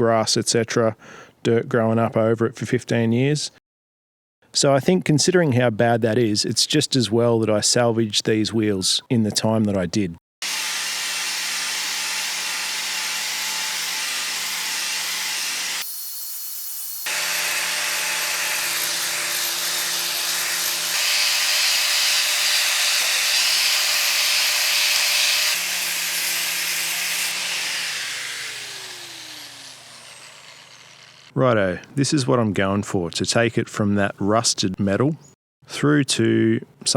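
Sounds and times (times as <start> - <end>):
angle grinder grinding steel: 10.4 - 31.3.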